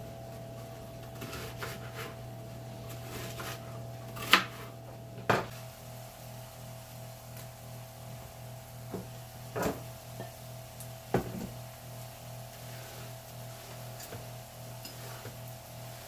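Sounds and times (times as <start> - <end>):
appliance hum: 0.0 - 16.0
kitchen cutting and knocking: 1.0 - 2.2, 2.8 - 5.5.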